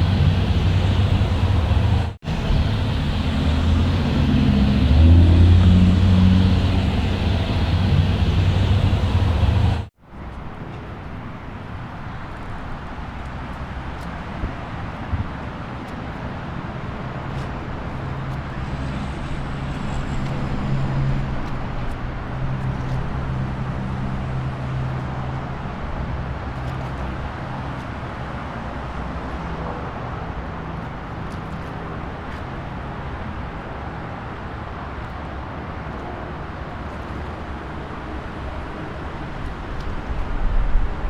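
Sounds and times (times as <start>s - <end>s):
low engine hum: 0.0s - 9.9s
road noise: 0.0s - 10.4s, 11.2s - 41.0s.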